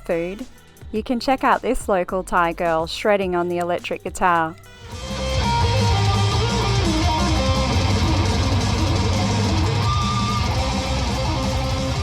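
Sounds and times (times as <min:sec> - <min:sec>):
electric guitar shredding: 0:04.9 - 0:12.0
heavy bass backing: 0:04.9 - 0:12.0.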